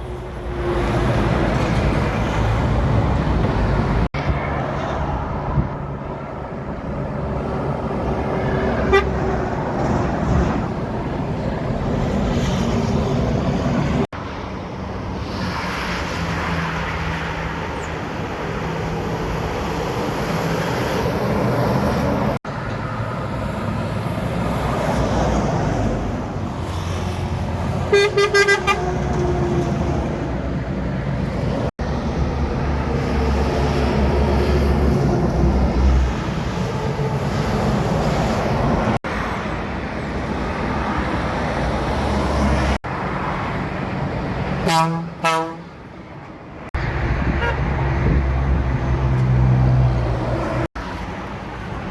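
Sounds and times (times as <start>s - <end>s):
heavy trucks passing on highway: 0.0s - 51.9s
truck horn toots: 8.8s - 9.5s, 27.9s - 29.3s, 44.6s - 45.8s, 47.3s - 47.7s.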